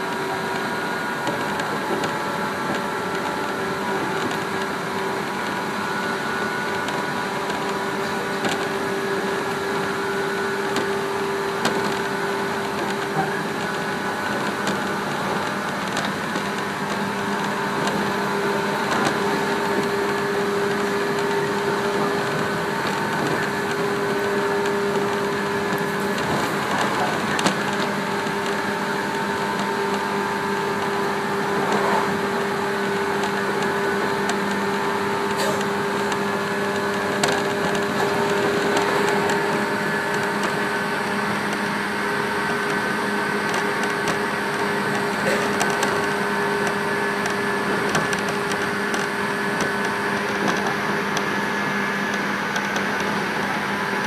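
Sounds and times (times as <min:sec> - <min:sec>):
train cabin drone: 0:00.0 - 0:54.0.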